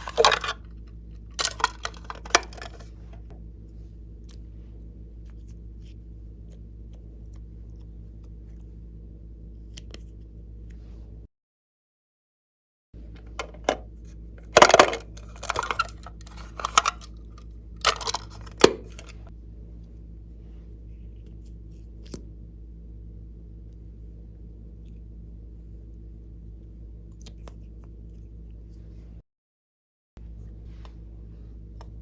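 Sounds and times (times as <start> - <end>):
rustling handling noise: 0.0 - 3.9, 13.0 - 19.3
steady low hum: 0.0 - 11.3, 13.0 - 29.2, 30.2 - 32.0.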